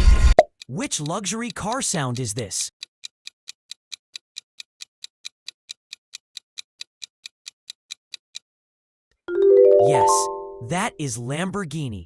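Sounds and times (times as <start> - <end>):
countdown timer ticking: 0.4 - 8.2.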